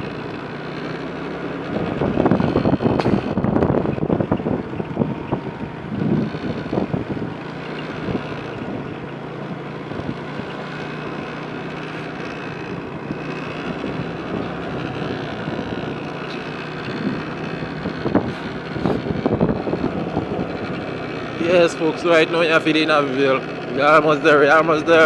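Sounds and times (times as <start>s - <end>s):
vehicle engine running: 0.0s - 25.0s
wind noise on microphone: 1.8s - 8.9s, 16.8s - 20.9s.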